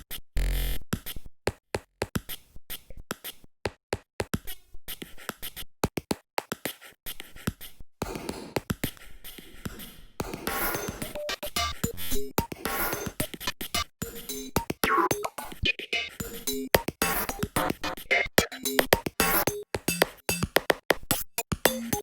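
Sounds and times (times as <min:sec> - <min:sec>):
scratchy noise layer: 0:09.7 - 0:13.9, 0:17.0 - 0:18.5.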